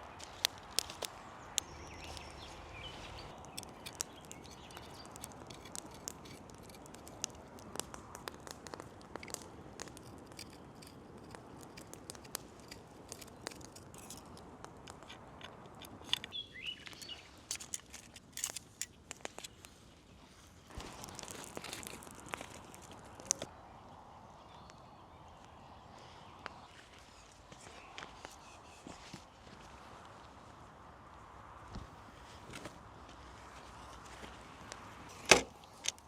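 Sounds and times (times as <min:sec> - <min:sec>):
small clicks and crackles: 0:00.0 - 0:23.5, 0:31.7 - 0:36.0
bird chirping: 0:01.2 - 0:06.4, 0:15.9 - 0:17.7.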